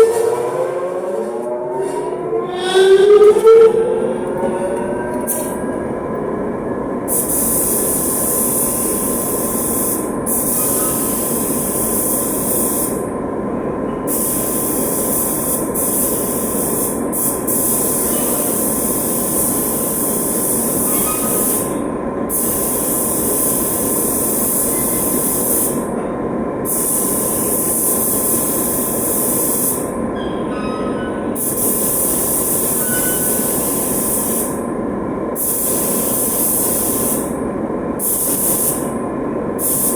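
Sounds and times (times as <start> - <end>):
spray gun hissing: 7.1 - 13.0, 14.1 - 21.7, 26.7 - 29.8, 31.4 - 34.6, 35.4 - 37.3, 38.0 - 38.9, 39.6 - 39.9.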